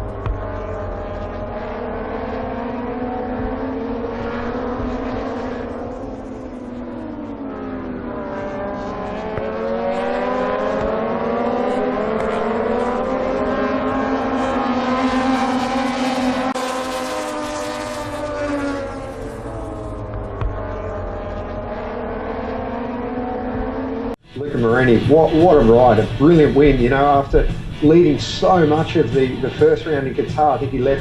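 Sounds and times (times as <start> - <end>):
racing motorcycle engines revving: 0.0 - 31.0.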